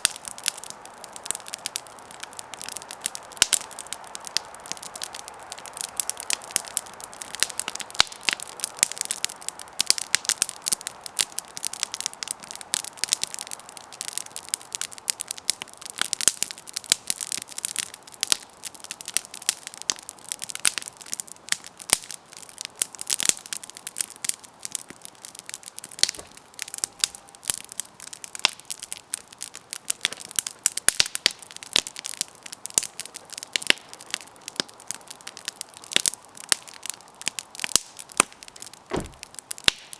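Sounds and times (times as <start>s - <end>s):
campfire crackling and popping: 0.0s - 39.9s
soft fire hiss: 38.8s - 39.4s.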